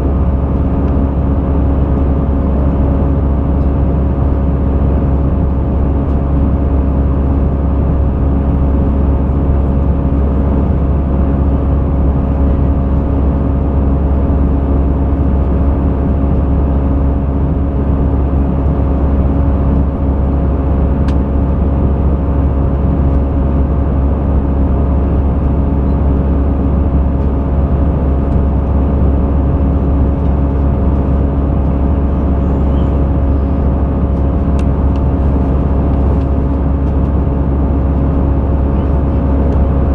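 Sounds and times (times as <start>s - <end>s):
airplane cabin engine drone: 0.0s - 39.9s
steady humming tones: 0.0s - 39.9s.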